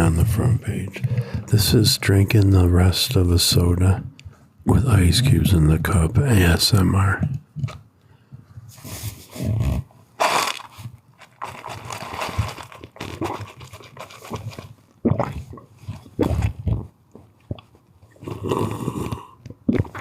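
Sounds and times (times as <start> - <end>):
ice cubes rattling and crunching: 10.2 - 14.8
slurping through a straw: 11.6 - 16.9, 17.5 - 20.0.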